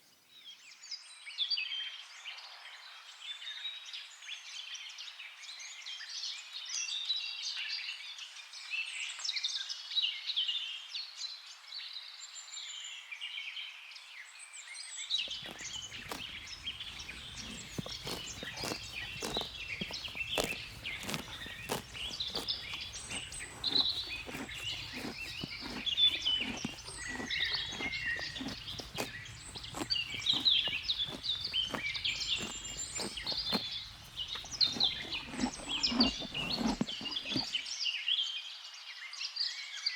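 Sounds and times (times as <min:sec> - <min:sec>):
birds chirping: 0:15.3 - 0:37.6.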